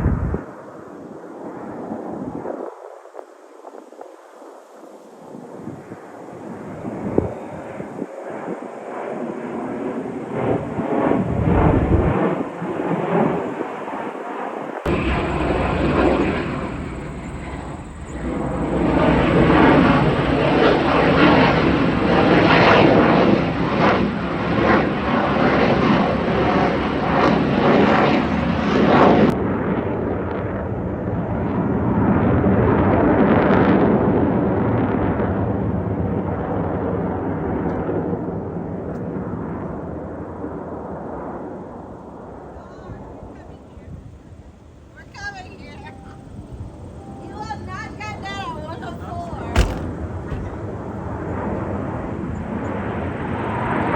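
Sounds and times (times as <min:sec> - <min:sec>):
jet aircraft flying past: 0:05.8 - 0:53.9.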